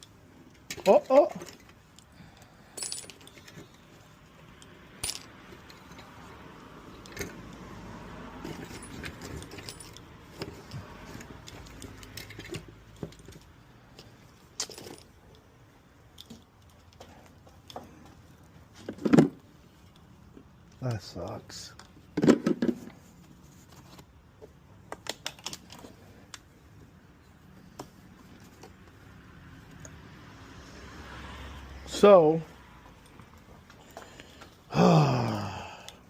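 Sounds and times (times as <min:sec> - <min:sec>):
metal parts and tools clinking: 0:00.0 - 0:03.9, 0:04.5 - 0:06.2, 0:08.4 - 0:15.4, 0:24.9 - 0:26.4.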